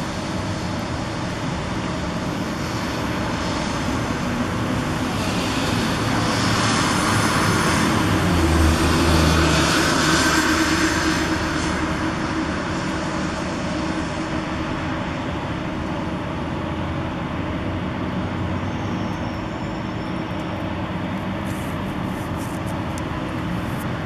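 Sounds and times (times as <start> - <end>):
city traffic noise: 0.0 - 24.0
vehicle passing engine hum: 3.4 - 15.5.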